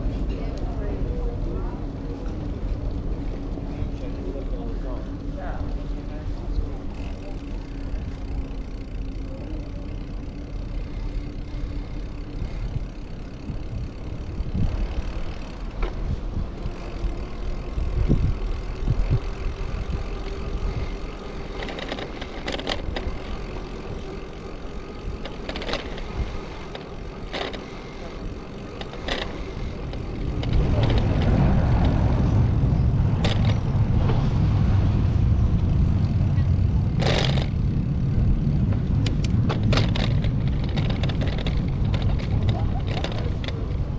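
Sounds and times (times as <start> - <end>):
low riding rumble: 0.0 - 43.9
passing car traffic: 0.0 - 43.9
scattered clicks: 21.0 - 32.1, 33.1 - 33.8, 36.3 - 43.8.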